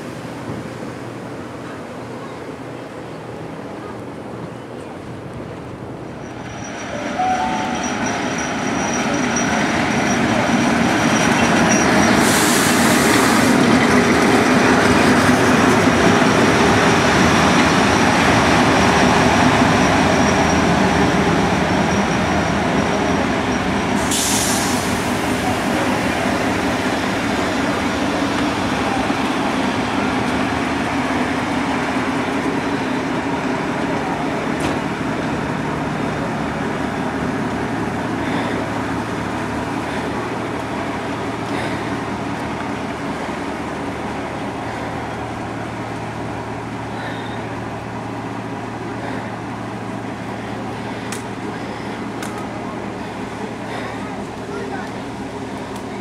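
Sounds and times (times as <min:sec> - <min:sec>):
train wheels rumbling on rails: 0:00.0 - 0:56.0
diesel locomotive engine running: 0:02.6 - 0:56.0
thin high squeal: 0:06.5 - 0:09.6.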